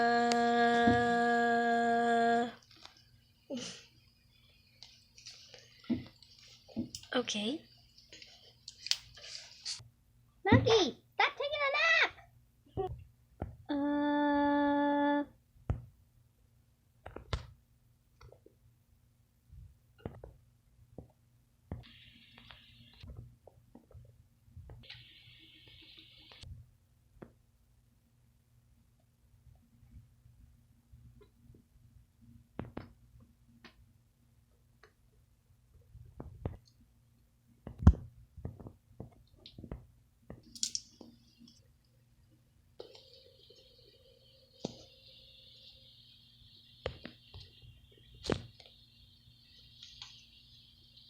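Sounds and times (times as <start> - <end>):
plastic toys clicking and knocking: 40.4 - 41.0.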